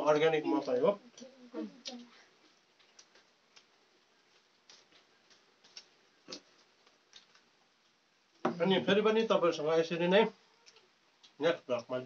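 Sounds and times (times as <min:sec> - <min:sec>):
man chewing with mouth closed: 0:01.8 - 0:08.0.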